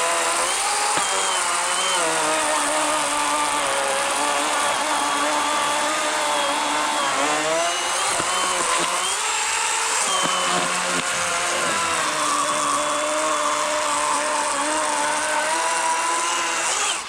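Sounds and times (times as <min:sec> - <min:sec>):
electric chainsaw cutting log: 0:00.0 - 0:17.0.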